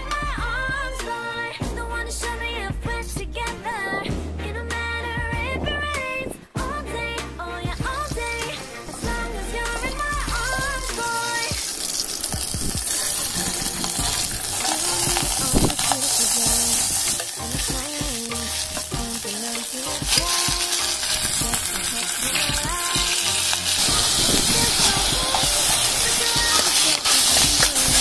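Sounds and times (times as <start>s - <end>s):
food sizzling in oil: 7.7s - 28.0s.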